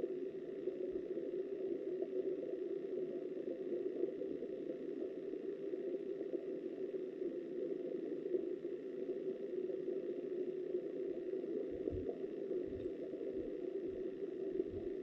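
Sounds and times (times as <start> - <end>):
muffled underwater river rush: 11.0 - 15.0.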